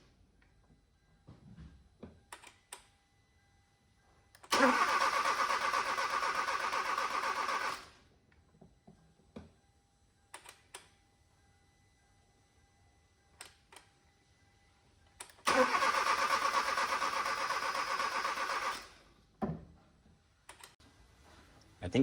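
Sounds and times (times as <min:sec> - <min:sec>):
car engine cranking: 0:04.5 - 0:07.9, 0:15.4 - 0:19.0.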